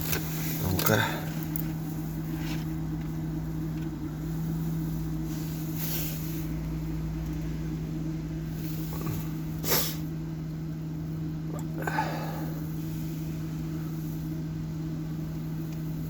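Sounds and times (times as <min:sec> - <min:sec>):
heater mechanical hum: 0:00.0 - 0:16.0
short hisses: 0:05.3 - 0:06.5, 0:08.6 - 0:10.1.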